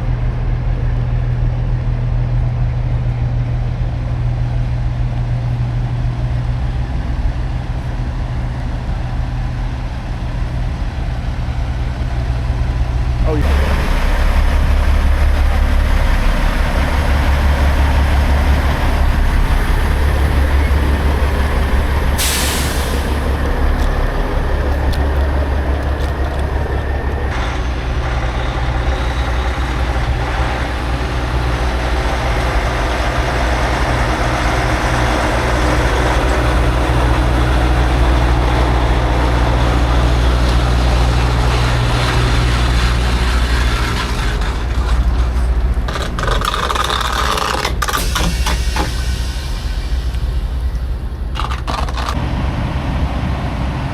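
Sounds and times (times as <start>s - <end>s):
truck diesel engine rumbling: 0.0s - 53.9s
air brake hiss: 22.0s - 24.5s, 47.9s - 50.9s.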